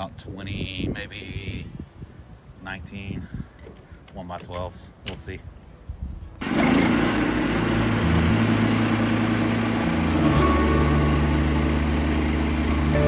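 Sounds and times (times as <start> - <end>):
sawmill gas engine running: 6.4 - 13.0.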